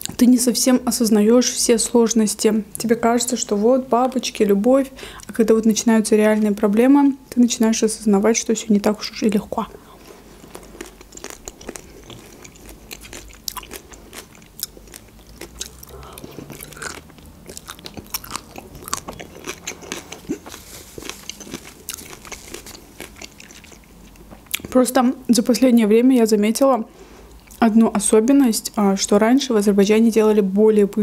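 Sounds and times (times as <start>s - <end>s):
person crunching raw onion: 10.2s - 24.7s.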